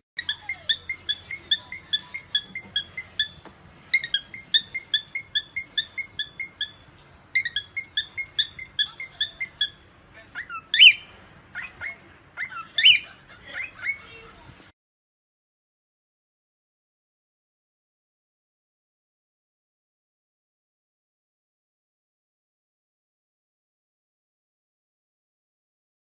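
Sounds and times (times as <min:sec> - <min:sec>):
parrot sweeping calls: 0:00.2 - 0:09.8
parrot chirping: 0:00.2 - 0:14.4.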